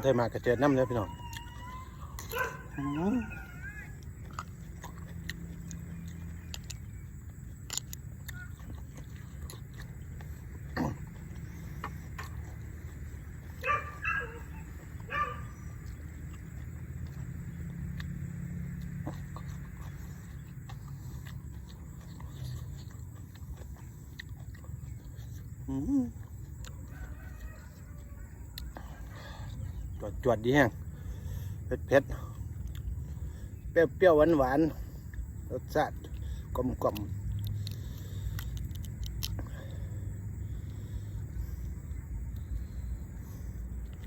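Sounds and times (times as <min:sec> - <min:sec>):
low background hum: 0:00.0 - 0:44.0
person chewing food: 0:00.0 - 0:44.0
crisp clicks: 0:04.0 - 0:10.3, 0:36.9 - 0:39.4
mouth clicks: 0:32.2 - 0:33.3, 0:35.9 - 0:44.0.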